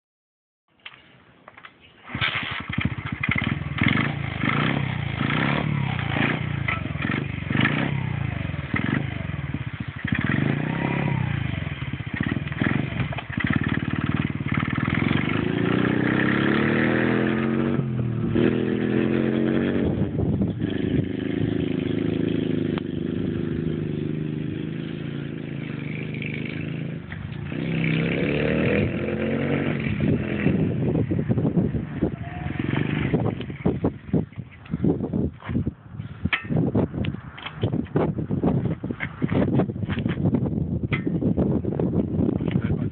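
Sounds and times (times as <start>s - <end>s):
dirt bike engine revving: 2.1s - 34.2s.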